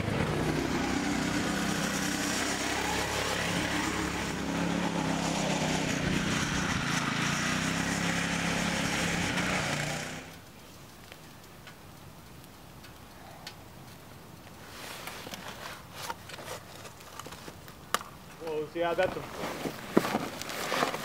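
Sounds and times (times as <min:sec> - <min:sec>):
steady hiss: 0:08.1 - 0:20.6.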